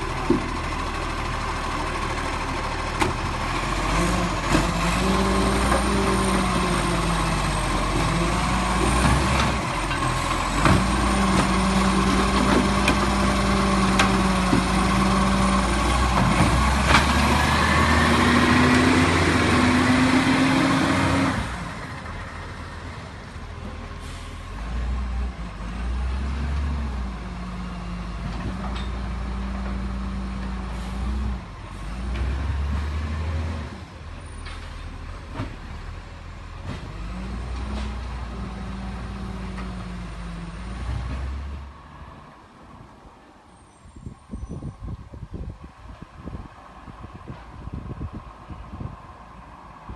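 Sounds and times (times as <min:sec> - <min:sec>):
garbage truck engine running: 0:00.0 - 0:26.1.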